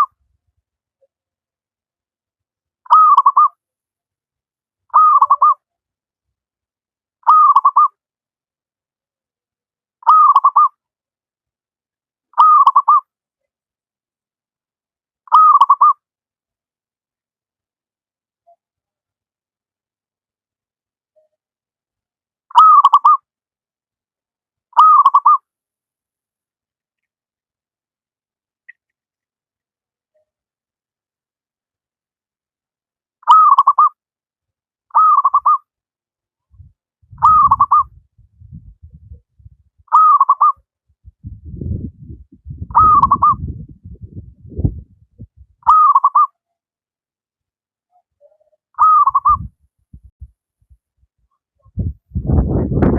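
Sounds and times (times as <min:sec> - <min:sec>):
dove cooing: 0:37.2 - 0:37.9, 0:42.7 - 0:43.6, 0:45.6 - 0:46.3, 0:48.8 - 0:49.5
low rumble: 0:41.1 - 0:45.6, 0:51.7 - 0:52.9.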